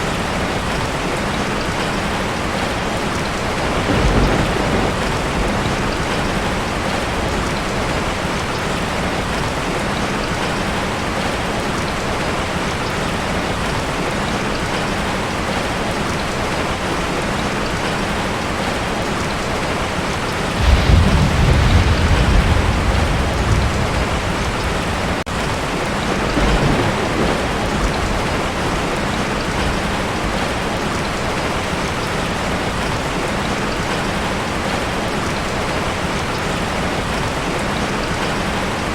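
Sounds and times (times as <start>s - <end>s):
heavy rain on a tin roof: 0.0s - 38.9s
thunder rumbling: 3.3s - 10.0s, 20.3s - 32.1s.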